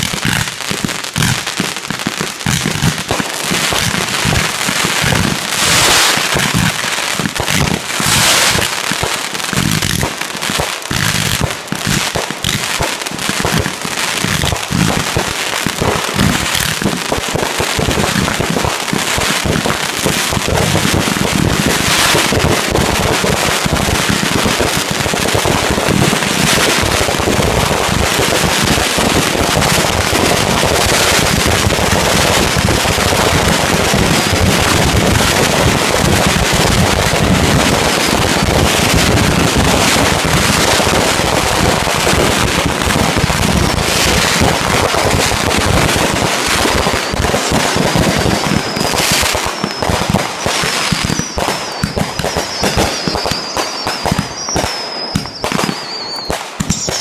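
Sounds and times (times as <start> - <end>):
fireworks crackling bangs: 0.0 - 57.0
high wavering whistle: 50.9 - 57.0.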